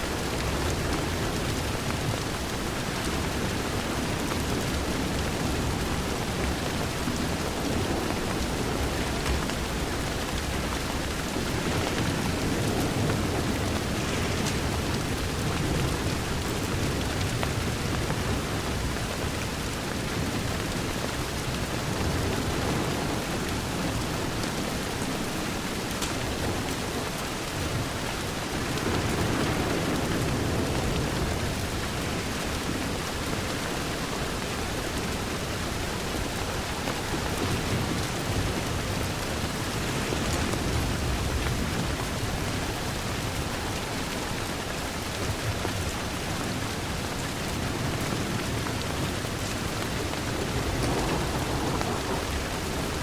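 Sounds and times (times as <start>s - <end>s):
low rolling thunder: 0.0s - 53.0s
rain pattering on a window: 0.0s - 53.0s.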